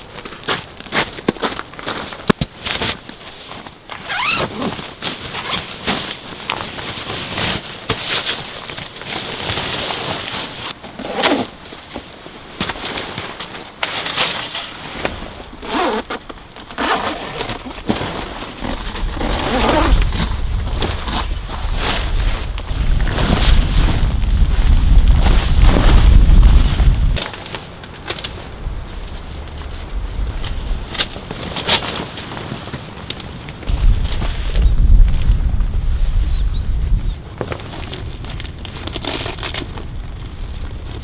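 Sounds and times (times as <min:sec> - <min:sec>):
zipper being pulled: 0:04.0 - 0:04.8, 0:11.0 - 0:11.8, 0:15.6 - 0:22.0
fabric rustling: 0:09.0 - 0:36.2
wind rumbling on microphone: 0:15.1 - 0:41.0.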